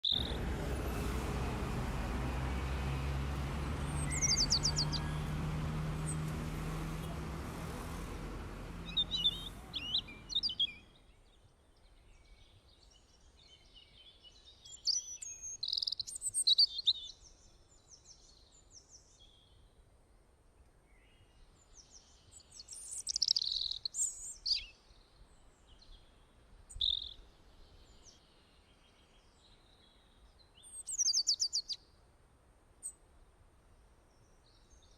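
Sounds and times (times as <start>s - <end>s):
small birds chirping: 0.0s - 10.9s, 12.8s - 17.3s, 21.6s - 25.0s, 26.7s - 31.8s.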